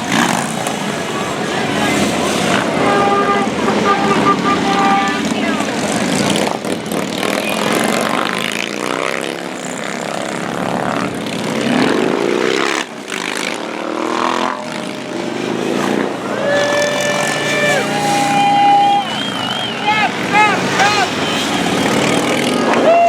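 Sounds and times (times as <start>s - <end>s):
helicopter flying overhead: 0.0s - 22.8s
horn: 2.5s - 5.4s.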